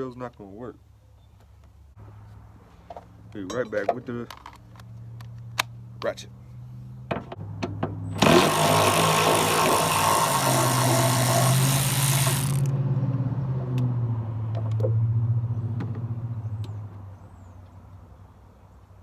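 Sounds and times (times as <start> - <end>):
vehicle engine humming: 4.6 - 17.0.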